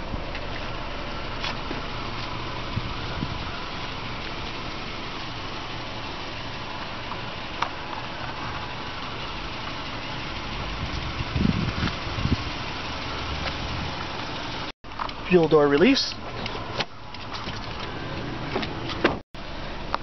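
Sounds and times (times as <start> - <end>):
car engine idling: 0.0 - 20.0
dull low thumps: 1.6 - 3.6, 10.5 - 12.6.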